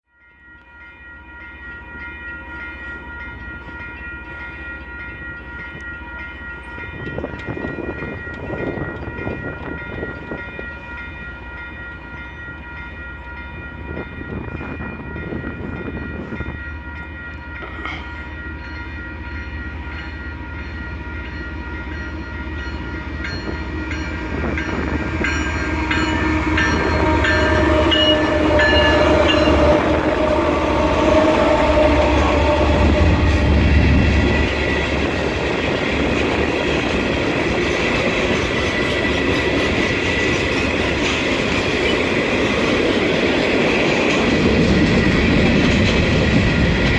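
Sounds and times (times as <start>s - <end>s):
freight train approaching: 0.0s - 46.9s
crossing signal ringing: 0.1s - 46.9s
train horn blasts: 22.1s - 35.2s.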